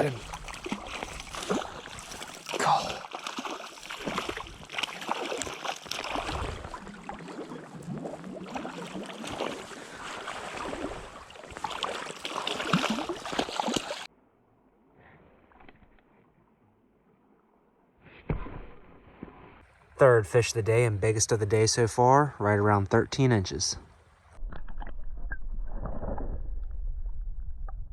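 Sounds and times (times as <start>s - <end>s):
creek water splashing: 0.0s - 14.1s.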